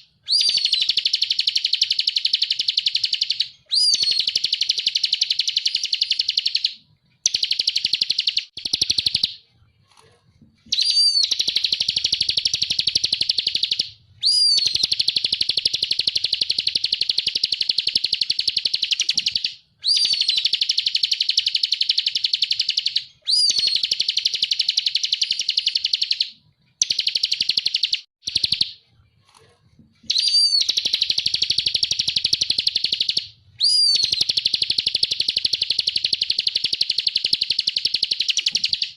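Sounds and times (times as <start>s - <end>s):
bird rattling trill: 10.7s - 26.2s, 30.1s - 38.9s.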